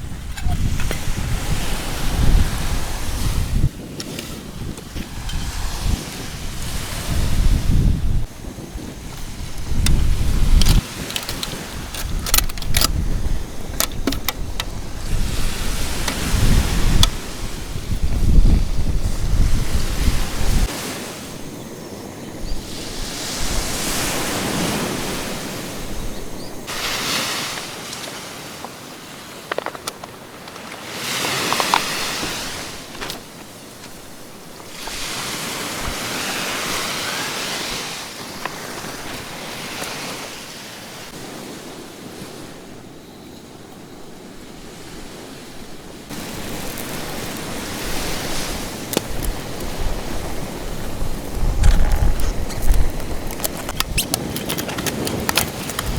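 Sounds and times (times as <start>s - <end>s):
surf washing onto beach: 0.0s - 43.0s, 44.2s - 55.9s.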